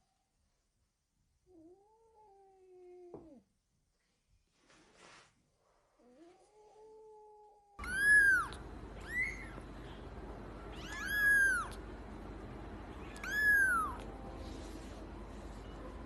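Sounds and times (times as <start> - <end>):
cat meowing: 6.5 - 9.6, 10.7 - 11.8, 13.0 - 14.1.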